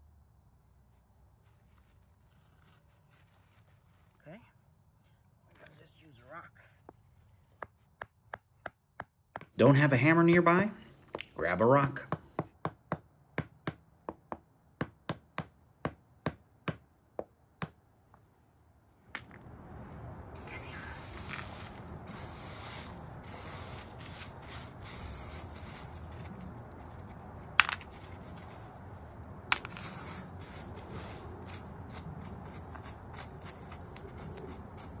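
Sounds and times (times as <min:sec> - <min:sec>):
steady hiss: 0:20.4 - 0:26.3, 0:29.5 - 0:31.7
rock knocking on wood: 0:27.5 - 0:28.1, 0:29.5 - 0:29.9.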